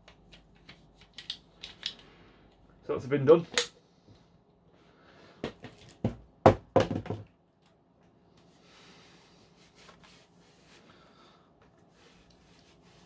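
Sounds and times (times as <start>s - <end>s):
faint rubbing and handling: 8.4s - 13.0s.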